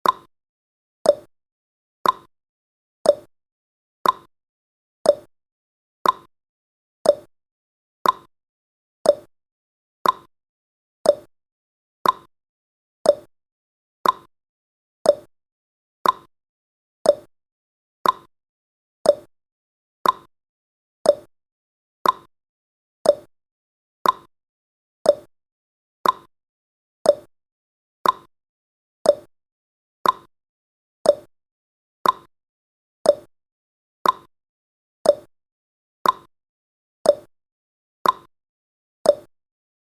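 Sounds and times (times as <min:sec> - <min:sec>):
clock ticking: 0:02.0 - 0:02.3, 0:04.0 - 0:04.3, 0:06.0 - 0:06.3, 0:08.0 - 0:08.3, 0:10.0 - 0:10.3, 0:12.0 - 0:12.3, 0:14.0 - 0:14.3, 0:16.0 - 0:16.3, 0:18.0 - 0:18.3, 0:20.0 - 0:20.3, 0:22.0 - 0:22.3, 0:23.1 - 0:23.3, 0:24.0 - 0:24.3, 0:26.0 - 0:26.3, 0:28.0 - 0:28.3, 0:29.1 - 0:29.3, 0:30.0 - 0:30.3, 0:31.1 - 0:31.3, 0:32.0 - 0:32.3, 0:33.1 - 0:33.3, 0:34.0 - 0:34.3, 0:35.1 - 0:35.3, 0:36.0 - 0:36.3, 0:38.0 - 0:38.3, 0:39.1 - 0:39.3.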